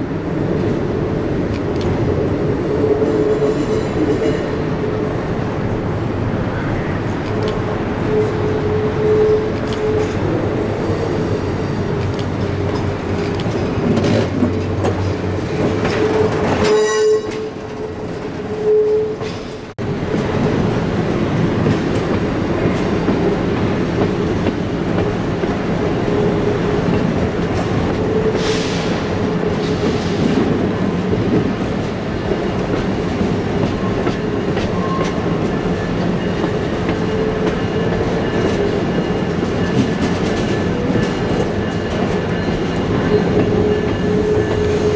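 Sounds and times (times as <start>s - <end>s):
train wheels rumbling and rattling: 0.0s - 44.9s.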